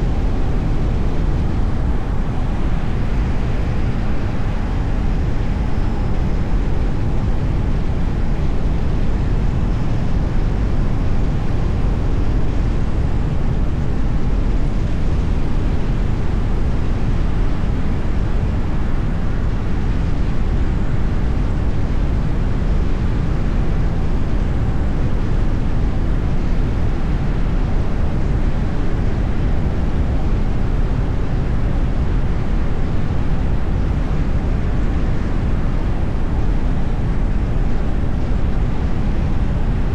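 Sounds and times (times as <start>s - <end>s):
car road and tyre noise: 0.0s - 39.9s.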